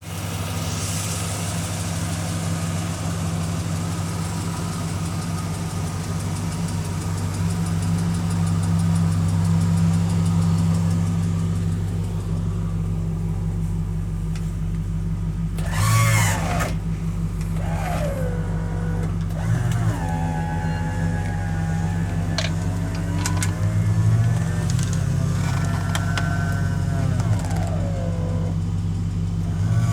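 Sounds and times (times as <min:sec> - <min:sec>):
car engine idling: 0:00.0 - 0:29.9
short whining glides: 0:15.6 - 0:28.6.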